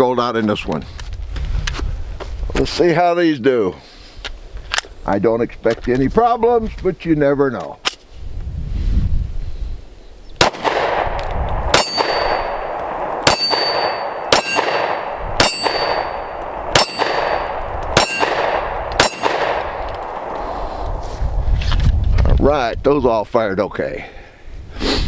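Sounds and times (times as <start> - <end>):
pistol shots echoing: 10.4 - 20.6
high metallic ring: 11.8 - 12.6, 13.3 - 14.8, 15.4 - 18.4.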